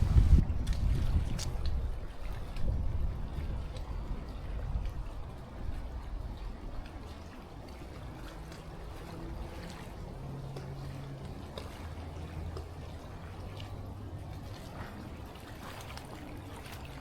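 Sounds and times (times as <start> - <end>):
low hum: 0.0 - 0.8
faint water trickling: 0.0 - 17.0.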